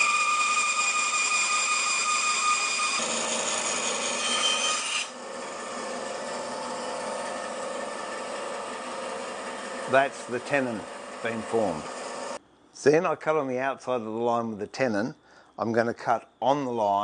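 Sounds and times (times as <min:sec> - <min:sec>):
bandsaw cutting wood: 0:00.0 - 0:12.4.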